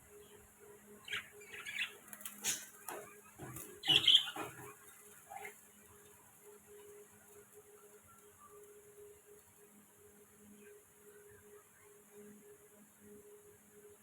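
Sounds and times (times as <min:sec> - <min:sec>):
budgerigars chirping: 0:01.1 - 0:05.5.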